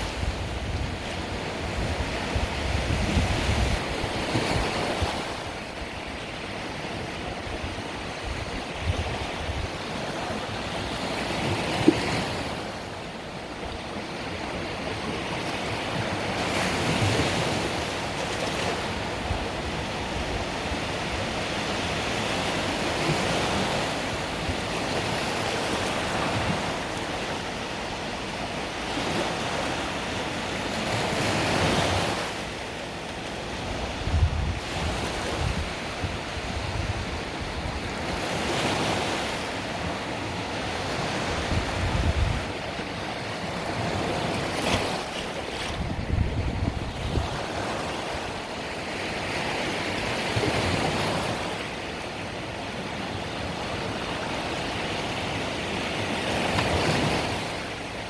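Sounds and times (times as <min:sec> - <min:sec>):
wind buffeting microphone: 0:00.0 - 0:06.4, 0:07.0 - 0:10.0, 0:33.6 - 0:38.4, 0:40.7 - 0:42.8, 0:43.7 - 0:49.2
waves breaking on beach: 0:00.0 - 0:58.0.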